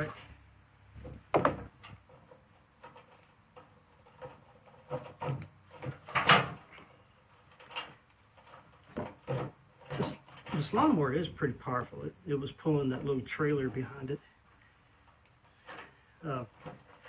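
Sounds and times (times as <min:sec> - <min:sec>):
handling knocks and clatters: 0:01.0 - 0:11.0, 0:15.1 - 0:17.0.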